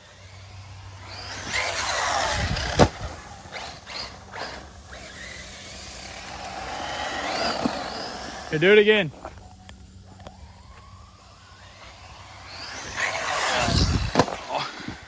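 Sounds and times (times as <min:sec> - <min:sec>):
rc car motor whining: 0:00.0 - 0:15.0
hard landing thump: 0:13.9 - 0:14.4.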